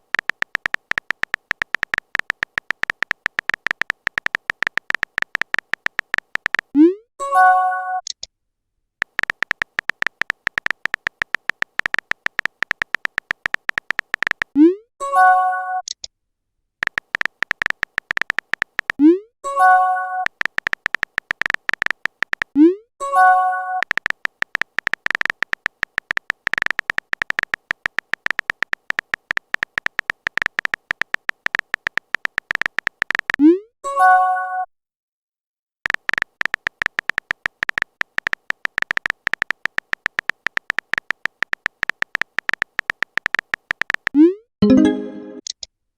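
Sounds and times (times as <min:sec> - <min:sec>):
typing key clicks: 0:00.0 - 0:06.8, 0:09.0 - 0:14.8, 0:16.8 - 0:33.4, 0:35.8 - 0:45.7
electronic message chime: 0:44.6 - 0:45.4.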